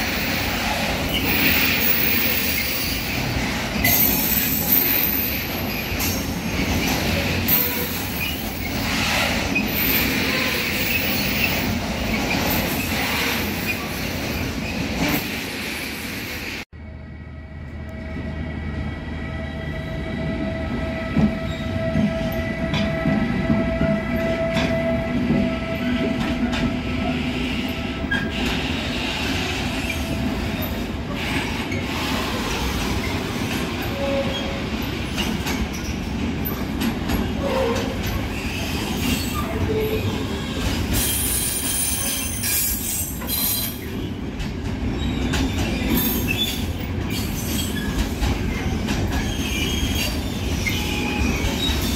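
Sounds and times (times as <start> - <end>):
train rumbling: 0.0 - 51.9
high wheel squeal: 1.1 - 3.2, 3.8 - 14.9, 45.0 - 51.9.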